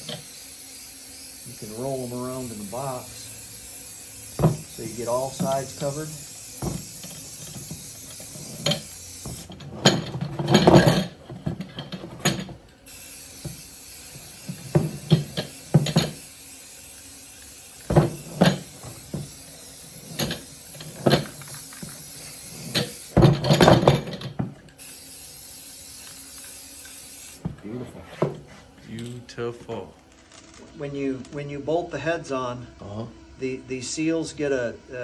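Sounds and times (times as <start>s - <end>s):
metal parts rattling in a box: 9.6s - 12.5s.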